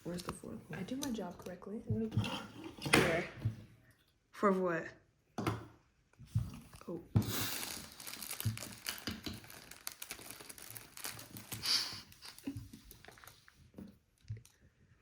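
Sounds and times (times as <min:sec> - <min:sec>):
plastic bags crinkling: 0:06.8 - 0:13.7.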